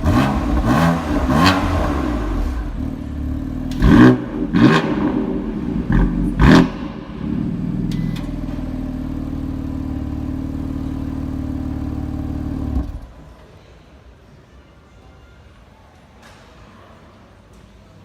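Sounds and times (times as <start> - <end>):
car engine idling: 0.0 - 13.2.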